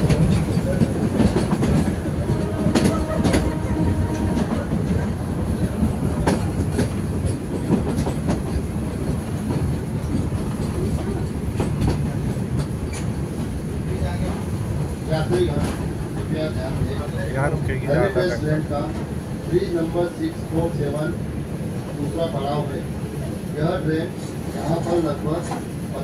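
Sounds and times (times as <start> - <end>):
wheels clicking over rail joints: 0.0 - 14.4
train wheels rumbling on track: 0.0 - 26.0.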